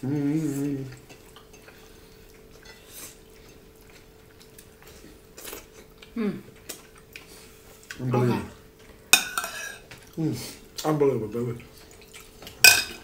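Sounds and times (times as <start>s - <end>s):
faint chewing: 0.0s - 12.6s
person humming: 6.2s - 6.5s.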